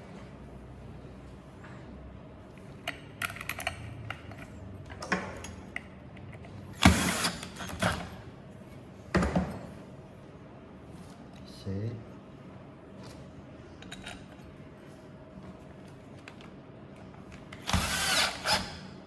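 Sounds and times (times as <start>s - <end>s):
clicks and knocks of parts: 2.6s - 6.6s.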